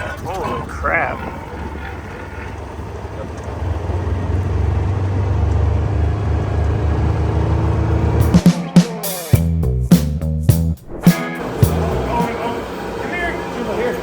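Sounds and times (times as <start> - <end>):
vehicle engine rumble: 0.0 - 8.4
music: 8.2 - 13.5.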